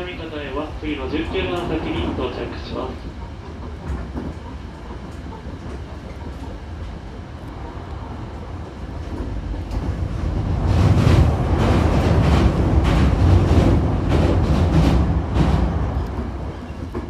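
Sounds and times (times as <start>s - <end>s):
train running low rumble: 0.0s - 17.0s.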